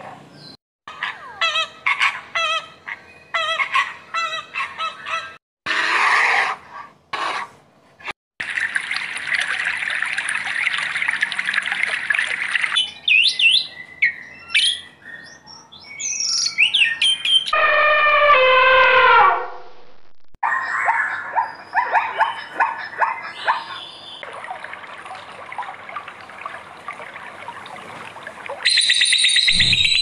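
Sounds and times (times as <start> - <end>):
bird sweeping calls: 28.6 - 30.0.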